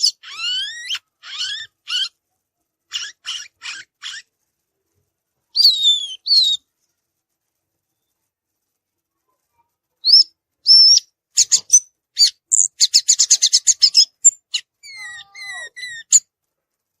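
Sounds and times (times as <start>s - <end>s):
bird singing whistled notes: 5.6s - 6.6s, 10.0s - 16.2s.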